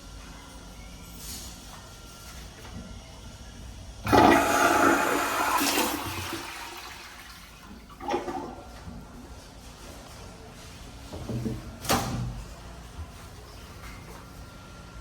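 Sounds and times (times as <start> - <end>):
toilet flushing: 4.0 - 9.0.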